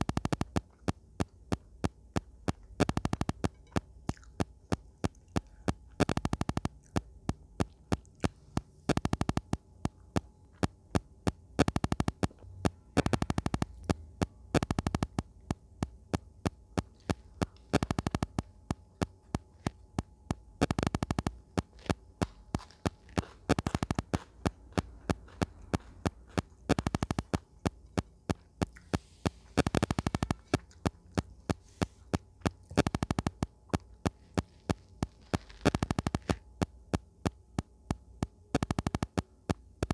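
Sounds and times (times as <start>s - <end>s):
chewing crunches and mouth clicks: 0.0s - 38.0s
faint steady hum: 0.0s - 39.9s.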